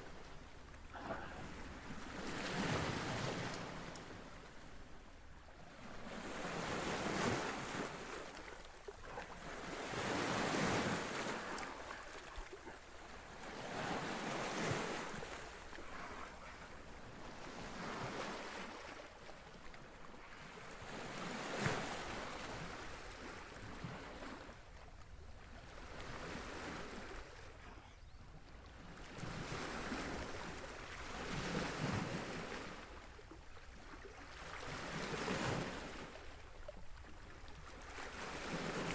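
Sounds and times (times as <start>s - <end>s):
waves washing against shore: 0.8s - 4.5s, 6.0s - 19.1s.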